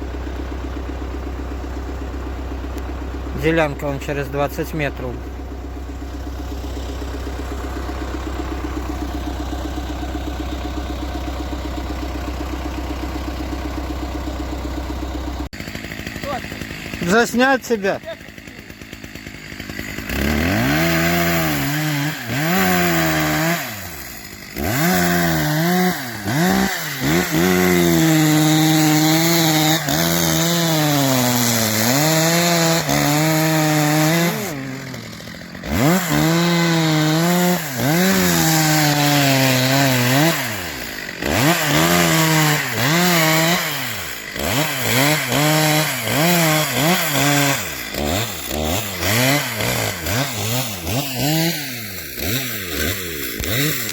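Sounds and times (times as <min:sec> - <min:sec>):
engine revving hard: 0:15.5 - 0:53.9.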